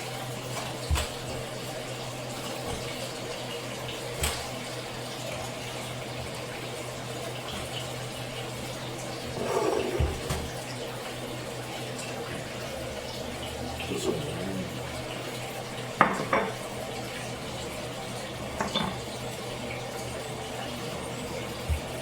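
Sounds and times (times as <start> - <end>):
water rushing: 8.8 - 22.0.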